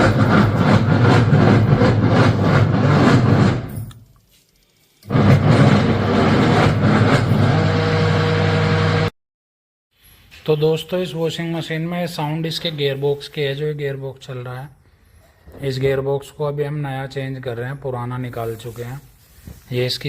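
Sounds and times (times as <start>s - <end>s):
washing machine mechanical noise: 0.0s - 4.0s, 4.7s - 8.8s.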